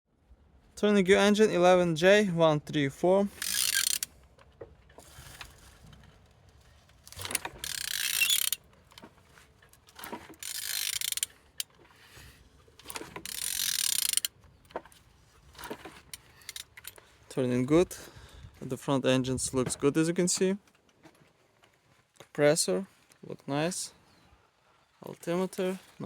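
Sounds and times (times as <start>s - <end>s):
ratchet wrench turning engine: 3.3s - 4.2s, 7.1s - 8.7s, 9.9s - 11.7s, 12.8s - 14.3s, 15.6s - 17.0s.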